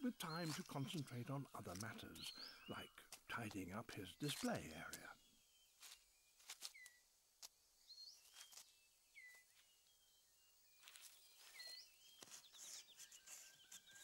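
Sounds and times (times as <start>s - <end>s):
whistled bird calls: 11.3s - 14.0s.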